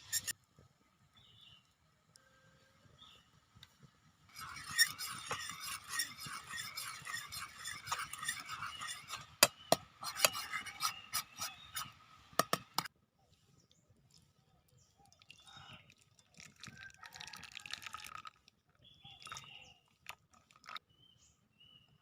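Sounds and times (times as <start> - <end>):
utensil scraping a pan: 0.0 - 0.3, 4.3 - 12.9.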